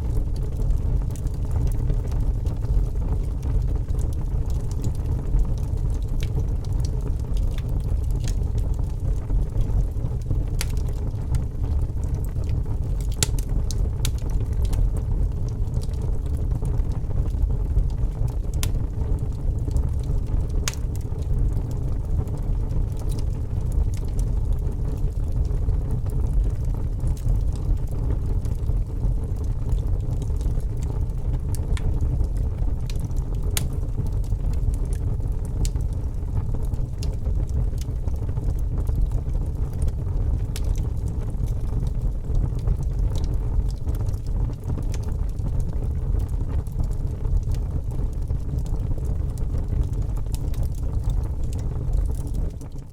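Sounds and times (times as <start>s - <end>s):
campfire flames rumbling: 0.0s - 52.9s
wood crackling and popping: 0.0s - 52.9s.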